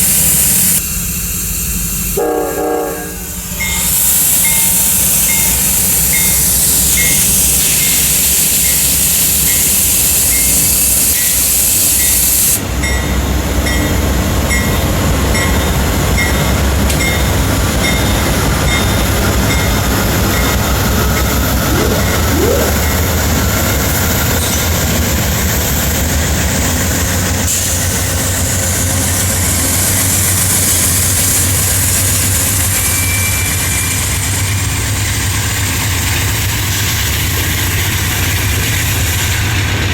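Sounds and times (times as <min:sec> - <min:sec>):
train rumbling: 0:12.6 - 0:39.9.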